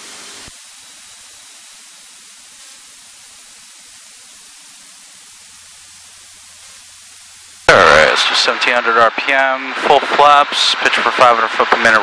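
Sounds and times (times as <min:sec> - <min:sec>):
headset static hiss: 0:00.0 - 0:09.5.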